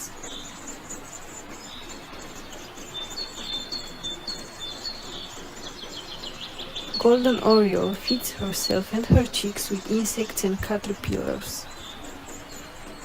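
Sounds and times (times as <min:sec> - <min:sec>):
background hiss: 0:00.0 - 0:13.0
birds chirping: 0:00.0 - 0:13.0.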